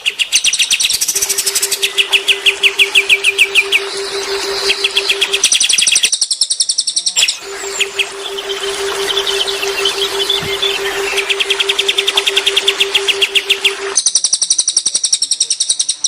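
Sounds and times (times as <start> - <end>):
songbirds chirping and trilling: 0.0 - 6.1, 7.0 - 14.0
low pulsing hum: 1.1 - 6.1, 7.4 - 14.0.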